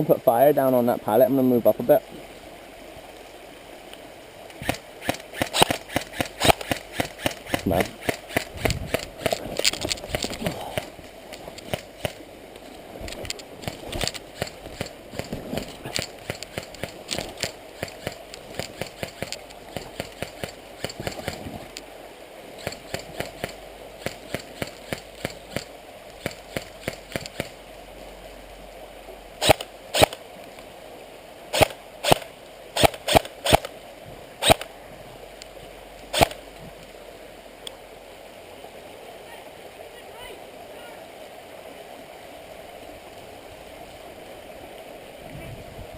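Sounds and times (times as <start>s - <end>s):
airsoft rifle shots: 4.6s - 9.4s, 29.4s - 30.2s, 31.5s - 33.7s, 36.1s - 36.4s.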